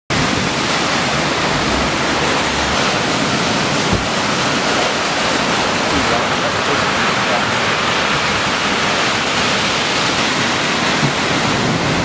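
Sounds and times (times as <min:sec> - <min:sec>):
heavy rain: 0:00.1 - 0:12.0
wind rumbling on microphone: 0:00.1 - 0:12.0
brief thump: 0:03.9 - 0:04.1.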